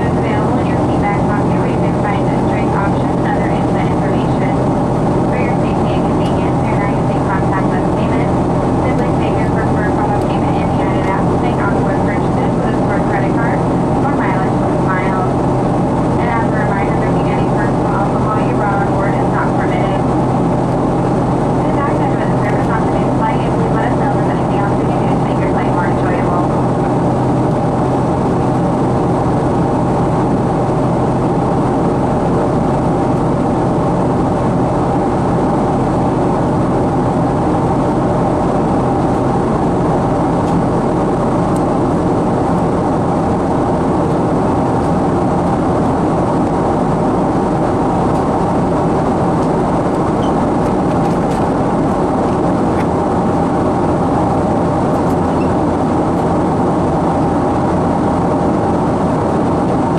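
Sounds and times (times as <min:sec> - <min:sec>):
aircraft cabin engine drone: 0:00.0 - 0:59.9.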